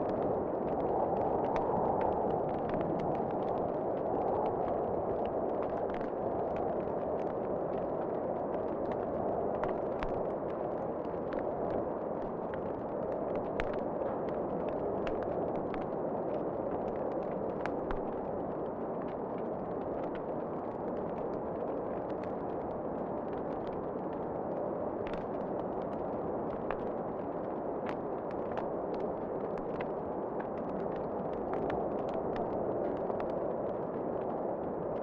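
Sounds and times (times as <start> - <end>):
fire crackling and popping: 0.0 - 35.0.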